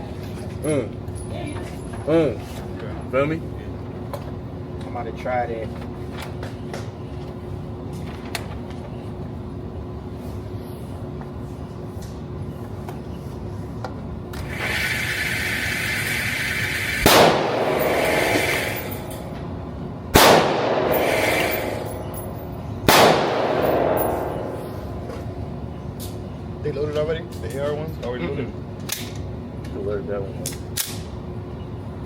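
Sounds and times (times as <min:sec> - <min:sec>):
echoing gunshots: 0:17.0 - 0:19.1, 0:20.1 - 0:22.1, 0:22.8 - 0:25.1.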